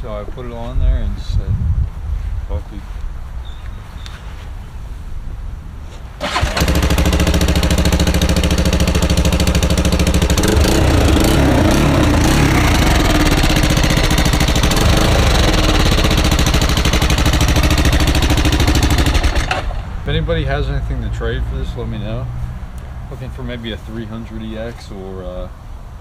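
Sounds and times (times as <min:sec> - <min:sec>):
quad engine idling loudly: 0:06.2 - 0:19.8.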